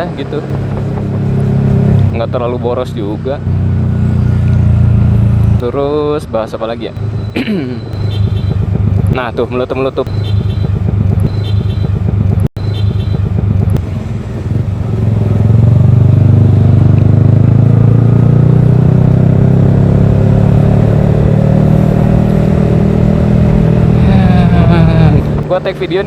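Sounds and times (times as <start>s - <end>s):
motorcycle engine running: 0.0s - 5.6s, 6.9s - 26.0s.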